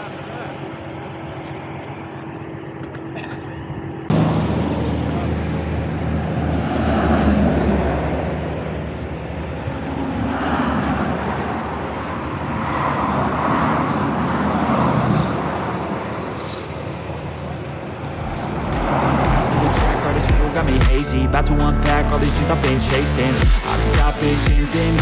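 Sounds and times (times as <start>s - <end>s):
wind rush on microphone: 18.1s - 20.4s.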